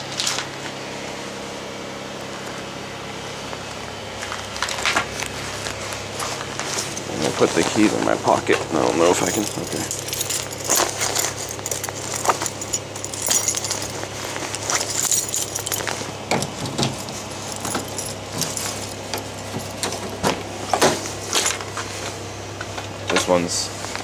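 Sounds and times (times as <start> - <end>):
steady low hum: 0.0 - 24.0
keys jangling: 6.7 - 7.4, 8.8 - 20.4.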